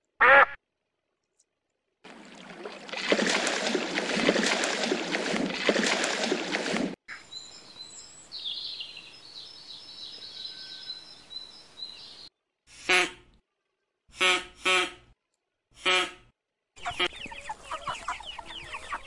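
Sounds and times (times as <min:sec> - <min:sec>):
water splashing hard: 0:02.1 - 0:07.0
small birds chirping: 0:07.1 - 0:12.3, 0:16.8 - 0:19.0.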